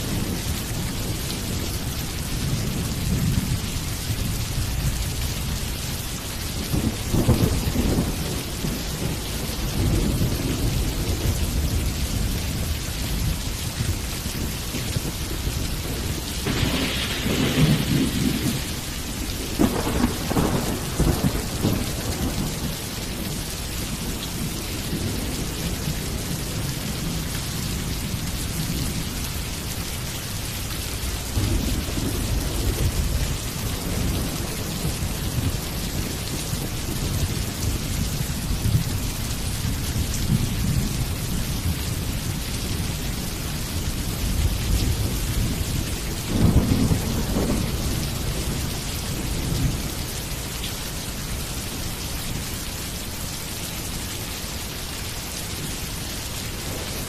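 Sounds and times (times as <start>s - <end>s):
steady rain: 0.0s - 57.0s
thunder rumbling: 6.6s - 29.3s, 31.2s - 39.1s, 44.0s - 50.0s, 55.6s - 57.0s.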